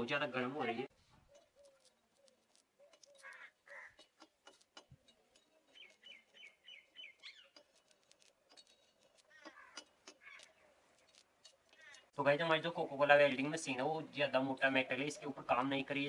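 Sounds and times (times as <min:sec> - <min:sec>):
small bird chirping: 0:01.1 - 0:12.2.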